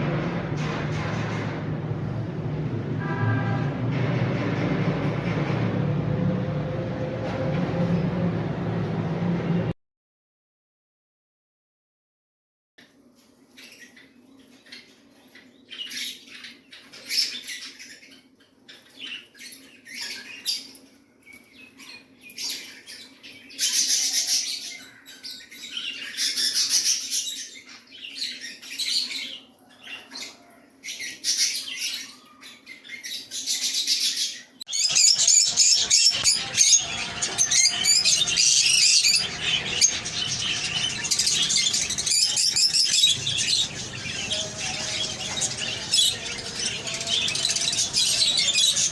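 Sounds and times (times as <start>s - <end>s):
birds chattering: 34.7s - 48.9s
parrots chirping and squawking: 34.7s - 48.9s.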